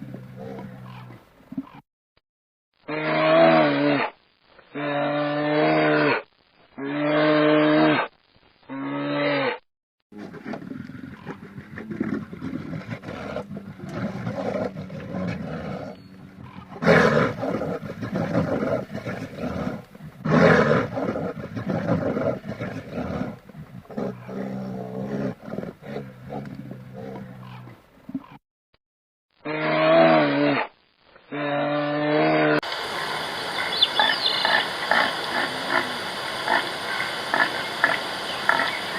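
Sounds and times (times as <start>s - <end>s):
deep rough animal roaring: 0.0s - 1.2s, 10.2s - 27.8s
short steady animal calls: 32.7s - 38.9s.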